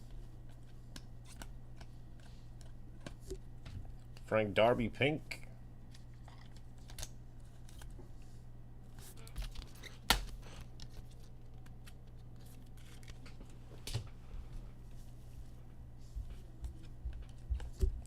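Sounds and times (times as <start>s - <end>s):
steady low hum: 0.0s - 18.0s
cards and packaging rustling: 9.0s - 13.6s.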